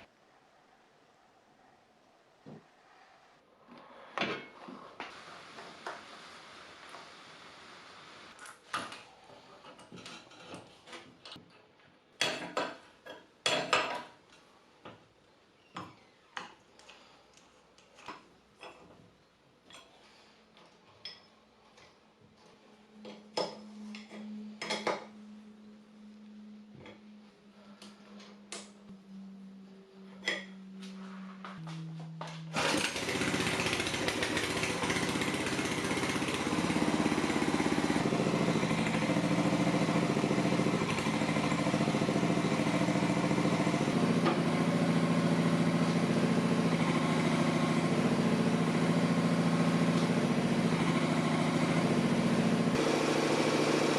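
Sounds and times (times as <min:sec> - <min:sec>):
small petrol engine running: 0:32.5 - 0:53.9.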